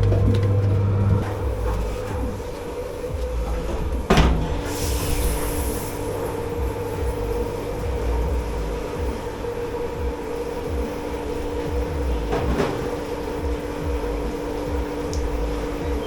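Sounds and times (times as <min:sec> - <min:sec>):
machinery hum and rumble: 0:00.0 - 0:16.0
brief hiss: 0:04.6 - 0:06.4.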